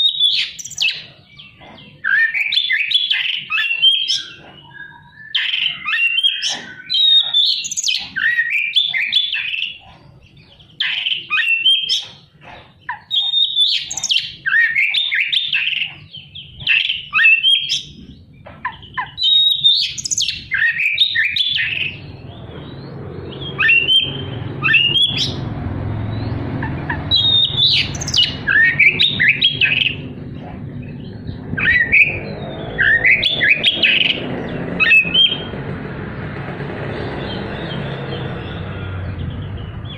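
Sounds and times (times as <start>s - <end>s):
songbird singing varied phrases: 0.0s - 35.5s
steady low rumble: 21.9s - 39.9s.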